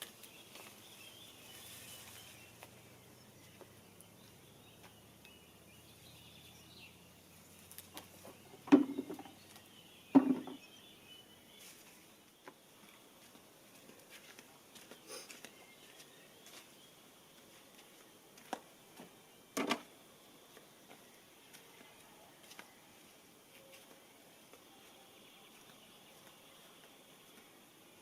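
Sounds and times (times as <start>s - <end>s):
sharp knocks or clicks: 8.6s - 9.3s, 10.2s - 10.6s.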